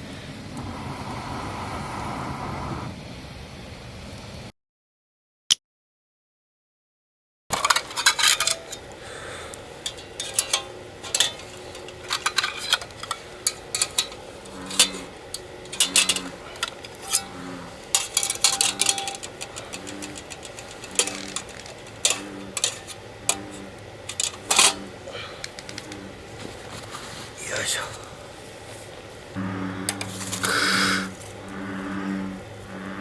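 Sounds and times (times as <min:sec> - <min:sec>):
cooking gear clicking and knocking: 0:07.5 - 0:26.9
frog croaking: 0:10.3 - 0:26.4, 0:29.3 - 0:33.0.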